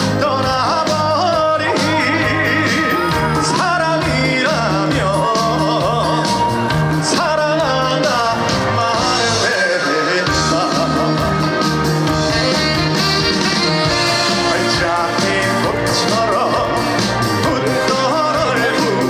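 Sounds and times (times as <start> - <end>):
band accompaniment over a pa: 0.0 - 19.0
man singing: 0.0 - 19.0.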